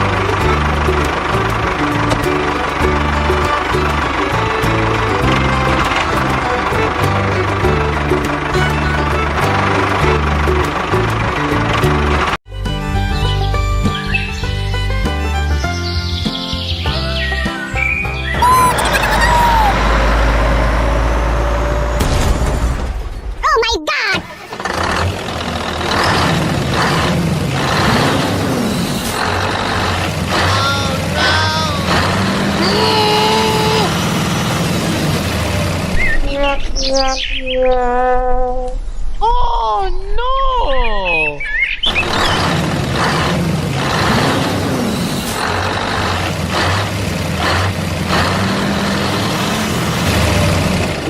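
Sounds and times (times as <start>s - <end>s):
truck engine humming: 0.0s - 23.4s, 24.2s - 36.7s, 41.8s - 51.0s
low rising and falling tone: 18.4s - 22.3s.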